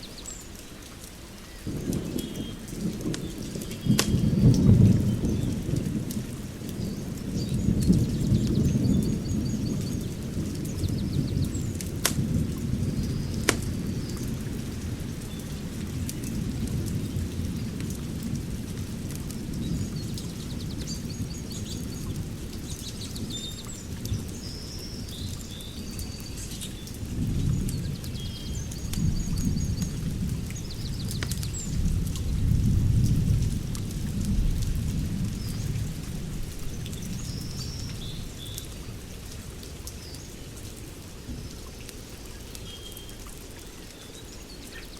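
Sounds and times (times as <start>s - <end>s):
fire pit rumbling: 1.7s - 19.7s
fire popping: 2.8s - 4.4s, 11.4s - 15.0s
birds chirping: 41.5s - 44.9s.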